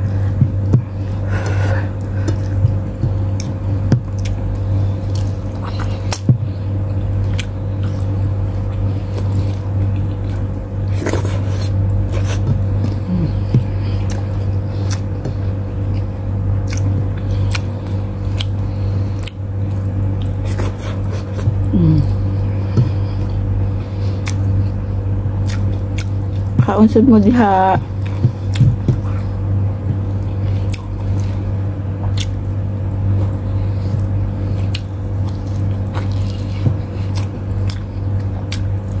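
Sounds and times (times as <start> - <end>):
steady low hum: 0.0 - 39.0
wet chewing and mouth clicks: 2.0 - 21.7, 24.1 - 26.6, 27.8 - 29.3, 29.9 - 31.4, 32.0 - 39.0.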